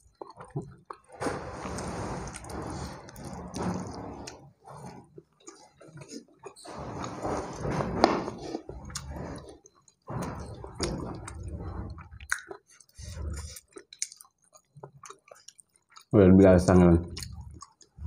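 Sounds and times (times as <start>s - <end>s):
person chewing food: 0.0s - 6.7s, 8.3s - 16.1s, 17.1s - 18.0s
wet mouth clicks: 11.9s - 16.1s, 17.1s - 18.0s.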